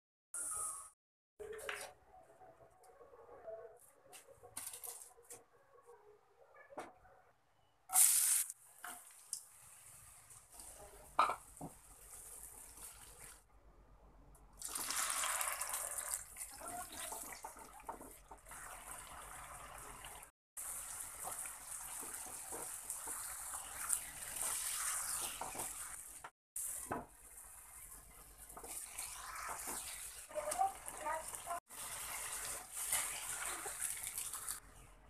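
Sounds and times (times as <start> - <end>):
food sizzling in a pan: 7.9 - 13.4, 14.6 - 34.6.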